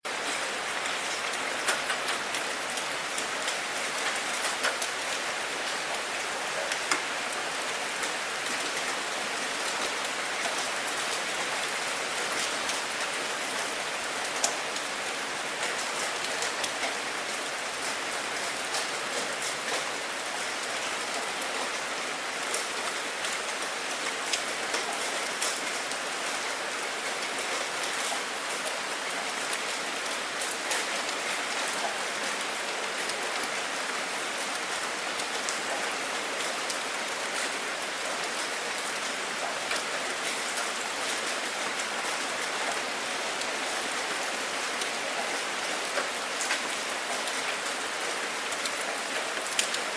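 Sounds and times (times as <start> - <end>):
steady rain hiss: 0.1 - 49.9
raindrops ticking on hard surface: 44.8 - 49.9.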